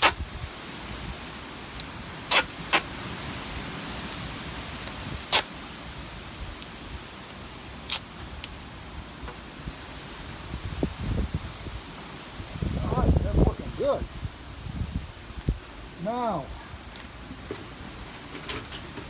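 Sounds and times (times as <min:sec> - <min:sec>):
duct tape ripping off roll: 0:00.0 - 0:00.3, 0:02.3 - 0:03.0, 0:04.8 - 0:05.5, 0:07.8 - 0:08.5
background hiss: 0:00.0 - 0:19.0.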